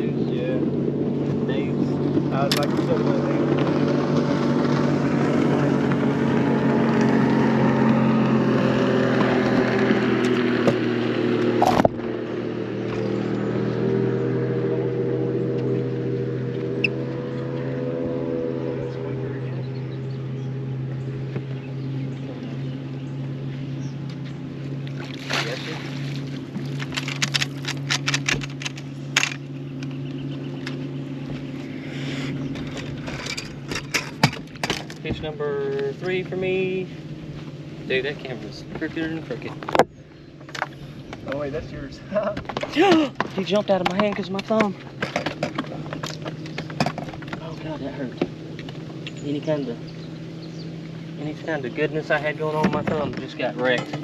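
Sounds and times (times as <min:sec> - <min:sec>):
boat motor running: 0:00.0 - 0:54.0
sharp clicks and rattles: 0:02.3 - 0:04.9, 0:26.5 - 0:30.8, 0:32.5 - 0:36.2, 0:38.5 - 0:41.6, 0:42.2 - 0:49.3.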